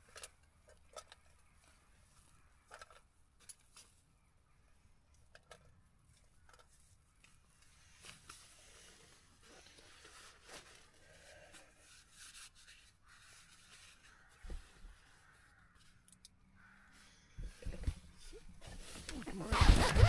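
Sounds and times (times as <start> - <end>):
faint rustling: 6.1 - 20.0.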